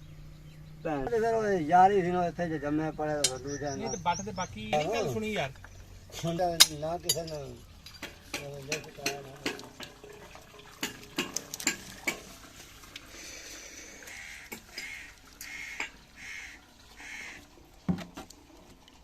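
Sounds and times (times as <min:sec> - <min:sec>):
bird calling: 0:00.0 - 0:07.8, 0:13.2 - 0:17.5
sharp clicks and knocks: 0:05.6 - 0:10.0, 0:10.8 - 0:12.3.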